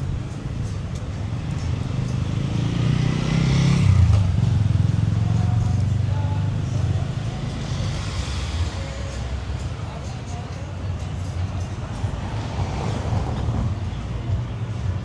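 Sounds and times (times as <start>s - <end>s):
vehicle engine passing by: 0.0s - 9.8s
faint voices of passers-by: 0.0s - 15.0s.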